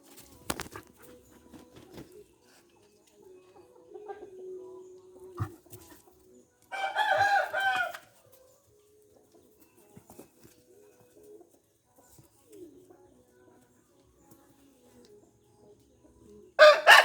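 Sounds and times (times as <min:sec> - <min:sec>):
rooster crowing: 0:06.7 - 0:08.2, 0:16.6 - 0:17.0.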